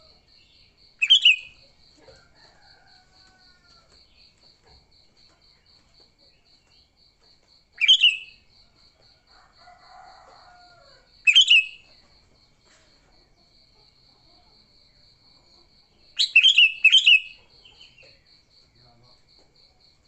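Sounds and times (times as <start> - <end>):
insect chirping in pulses: 0.0 - 4.4, 5.5 - 12.6, 13.2 - 20.0
bulbul calls: 1.0 - 1.6, 7.8 - 8.4, 11.3 - 11.9, 16.1 - 18.2.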